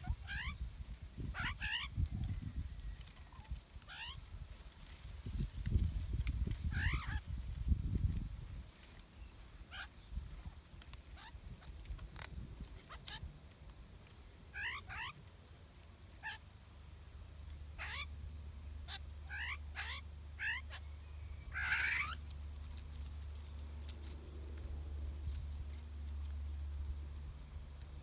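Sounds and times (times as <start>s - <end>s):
bird chirps: 18.8s - 22.3s
steady low rumble: 22.2s - 28.0s.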